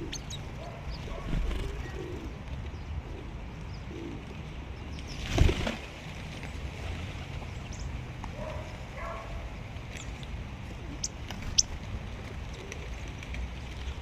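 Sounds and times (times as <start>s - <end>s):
bird wings flapping: 5.2s - 5.9s.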